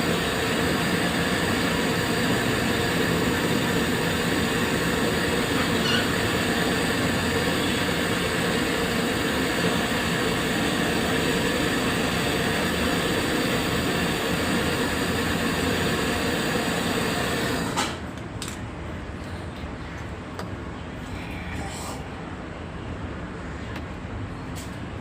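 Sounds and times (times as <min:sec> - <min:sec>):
machine humming: 0:00.0 - 0:17.8.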